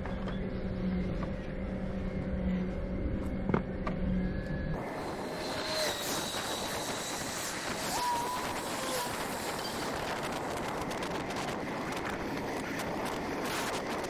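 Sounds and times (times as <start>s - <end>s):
wind rushing on microphone: 4.8s - 14.0s.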